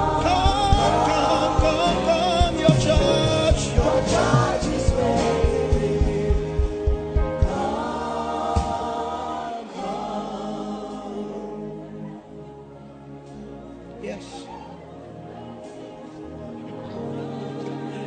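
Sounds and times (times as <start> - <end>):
voices singing together: 0.0 - 12.6
band with drum beat: 0.5 - 7.8.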